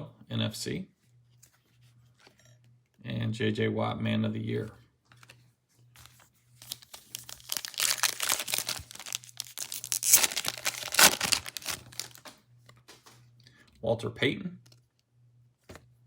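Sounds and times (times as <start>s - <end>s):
foil wrapper tearing and crinkling: 6.6s - 12.4s.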